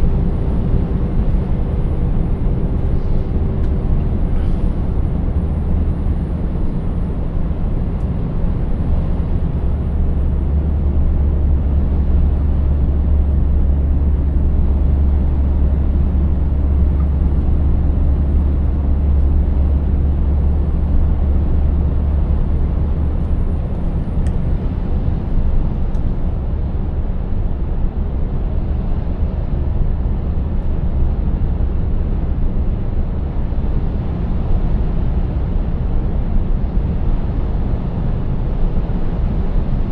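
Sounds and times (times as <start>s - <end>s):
truck diesel engine droning: 0.0s - 27.2s.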